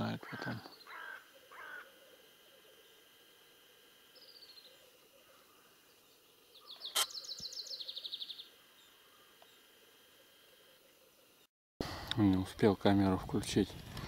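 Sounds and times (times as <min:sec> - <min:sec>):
songbird singing trill: 0:04.1 - 0:11.5
sharp click: 0:06.9 - 0:07.5.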